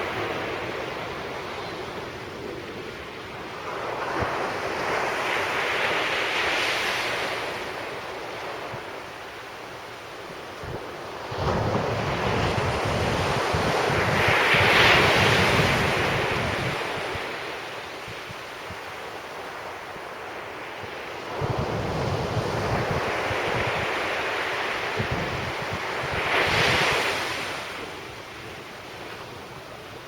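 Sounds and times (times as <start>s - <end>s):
wind buffeting microphone: 10.4s - 19.0s, 20.9s - 28.0s.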